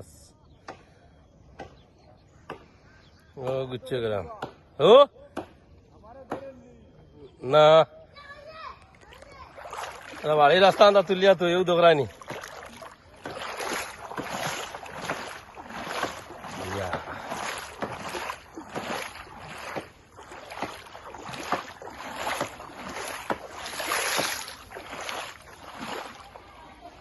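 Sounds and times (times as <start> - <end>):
oars splashing water: 8.8 - 27.0.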